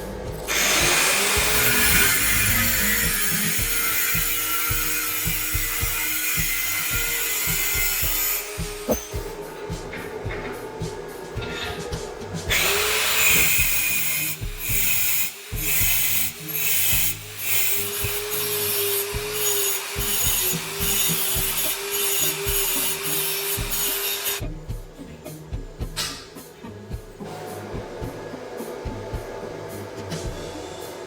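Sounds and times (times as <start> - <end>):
electric power tool grinding: 0.4 - 9.2, 12.5 - 24.4.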